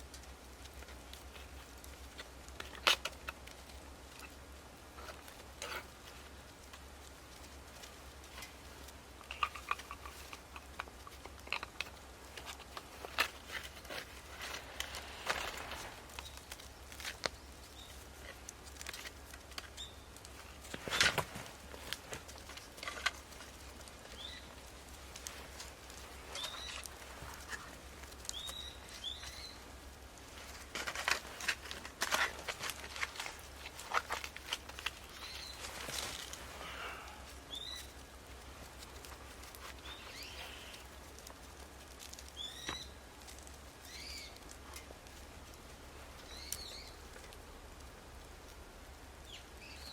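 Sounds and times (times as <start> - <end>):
wood fire crackling and popping: 0.0 - 49.9
small bird chirping: 14.4 - 18.1, 19.6 - 20.2, 24.0 - 24.6, 26.3 - 29.7, 35.0 - 36.3, 37.0 - 38.0, 39.6 - 40.9, 42.3 - 43.0, 43.8 - 44.4, 46.2 - 47.1, 49.2 - 49.9.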